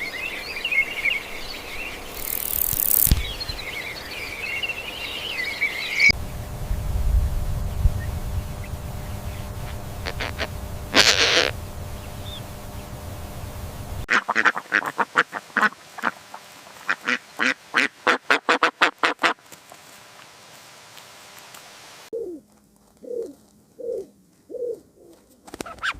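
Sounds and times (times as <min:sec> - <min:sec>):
low rumbling background: 0:06.1 - 0:14.1
harsh animal calls: 0:10.0 - 0:11.6.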